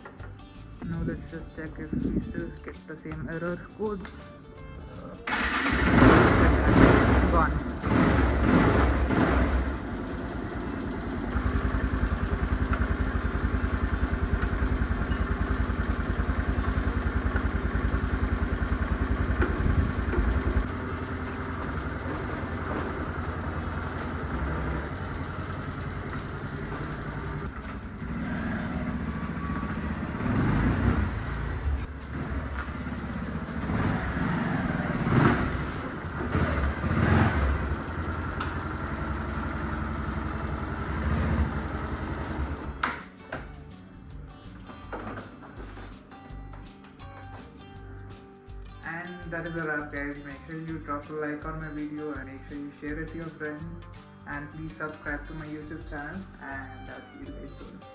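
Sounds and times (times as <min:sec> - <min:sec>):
motorcycle engine idling: 0:05.3 - 0:43.0.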